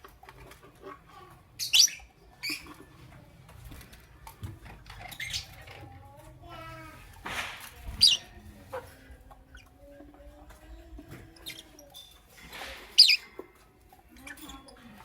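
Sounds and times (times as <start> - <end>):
lovebirds chirping: 1.1 - 3.1, 4.2 - 5.8, 7.8 - 15.0.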